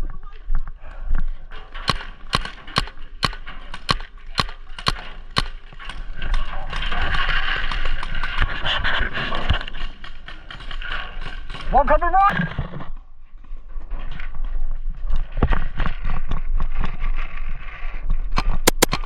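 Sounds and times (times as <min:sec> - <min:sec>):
paintball marker shots: 0:01.8 - 0:05.6, 0:18.4 - 0:19.0.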